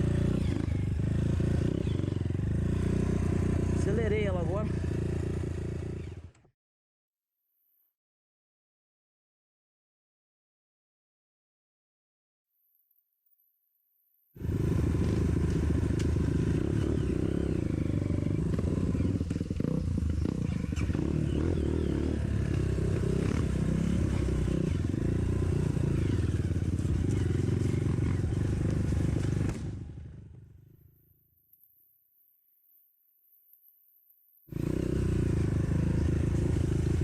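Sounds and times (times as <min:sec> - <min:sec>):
motorcycle engine with rattling: 0:00.0 - 0:06.5, 0:14.4 - 0:31.0, 0:34.5 - 0:37.0.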